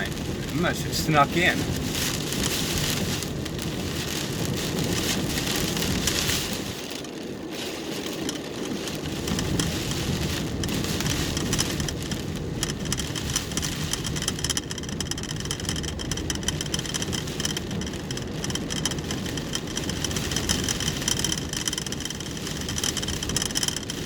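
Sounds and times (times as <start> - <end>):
car engine running: 0.0 - 2.6, 9.2 - 24.0
rain on a car: 0.0 - 24.0.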